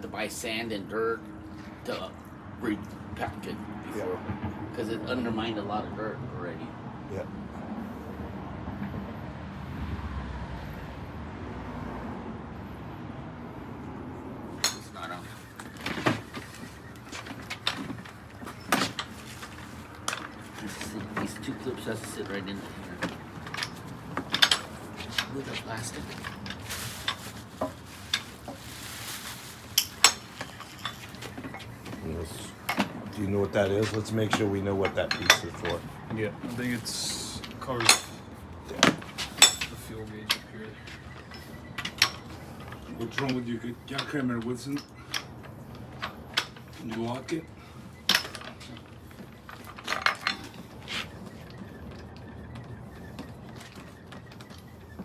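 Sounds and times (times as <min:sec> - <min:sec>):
metal tools clinking: 0:14.6 - 0:51.2.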